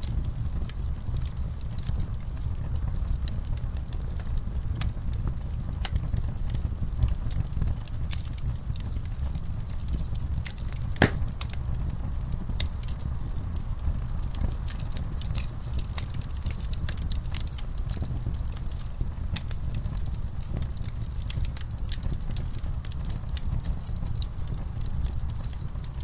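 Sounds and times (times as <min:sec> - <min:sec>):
low rumble of burning: 0:00.0 - 0:26.0
wood fire crackling and popping: 0:00.0 - 0:26.0.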